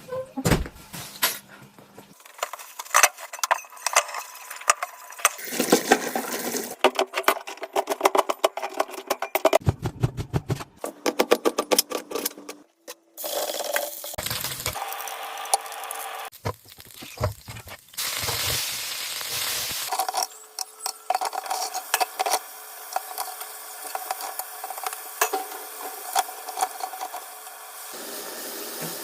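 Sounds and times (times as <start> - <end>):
utensils clinking and clattering: 2.1 - 9.6, 19.9 - 27.6.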